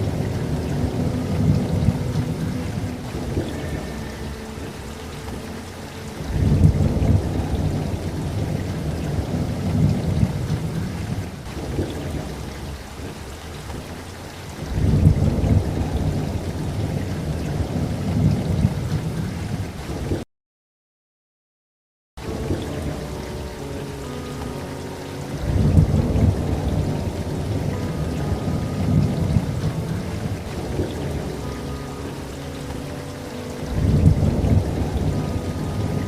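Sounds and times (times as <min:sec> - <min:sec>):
steady rain: 0:00.0 - 0:20.2, 0:22.2 - 0:36.0
rolling thunder: 0:06.2 - 0:19.7, 0:33.6 - 0:36.0.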